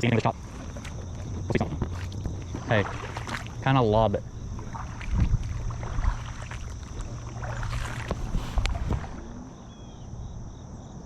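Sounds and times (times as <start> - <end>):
low rumble of water: 0.0 - 11.0
wind: 0.0 - 11.0
knocks and clicks on kayak: 7.9 - 9.2.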